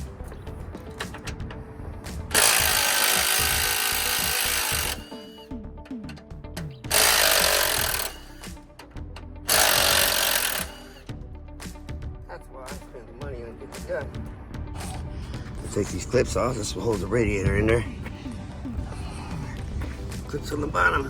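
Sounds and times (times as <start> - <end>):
impact wrench spinning bolts: 2.3 - 5.2, 6.9 - 8.5, 9.5 - 11.0.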